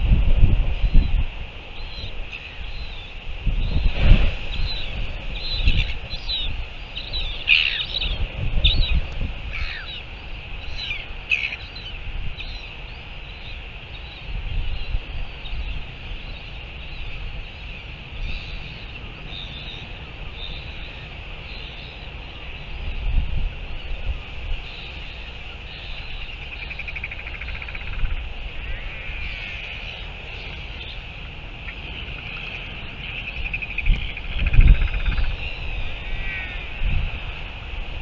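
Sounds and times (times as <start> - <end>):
insects buzzing: 0.0 - 38.0
wind rumbling on microphone: 0.0 - 38.0
birds chirping: 0.8 - 23.0.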